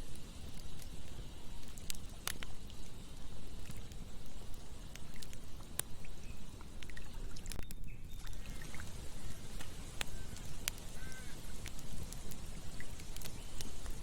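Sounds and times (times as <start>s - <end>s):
campfire burning: 0.0s - 14.0s
wood popping and snapping: 6.8s - 8.4s.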